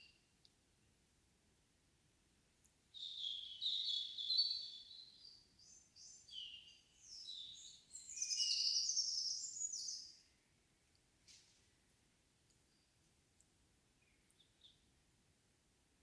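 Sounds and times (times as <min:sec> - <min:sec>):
songbird singing: 0:02.9 - 0:10.4, 0:14.0 - 0:14.9.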